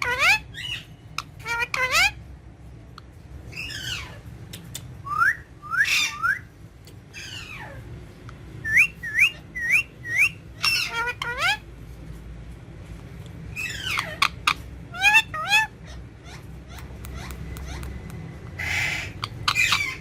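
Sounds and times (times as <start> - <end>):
parakeet whistled calls: 0.0 - 2.2, 5.0 - 6.5, 8.6 - 11.6, 13.5 - 17.9, 18.6 - 20.0
parakeet chatter: 0.0 - 5.0, 8.7 - 11.7, 13.4 - 20.0.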